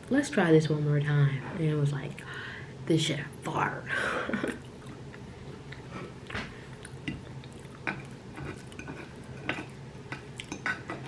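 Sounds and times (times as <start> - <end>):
person chewing food: 4.5 - 11.0.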